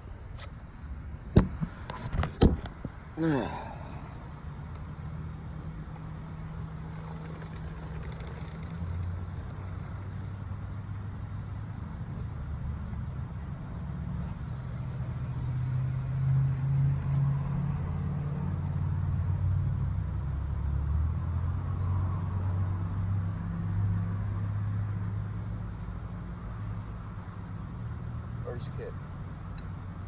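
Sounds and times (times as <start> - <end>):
engine idling: 3.2 - 15.2.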